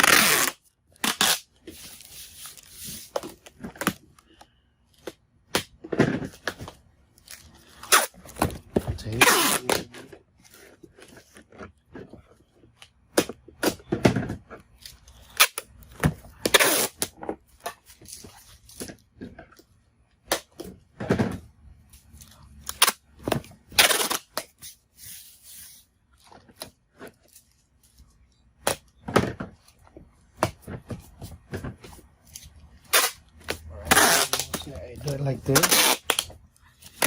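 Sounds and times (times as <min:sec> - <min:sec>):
packing tape ripping off roll: 0:00.0 - 0:04.0, 0:07.7 - 0:08.4, 0:09.1 - 0:09.9, 0:16.4 - 0:17.1, 0:22.6 - 0:23.0, 0:23.7 - 0:25.8, 0:32.8 - 0:37.0.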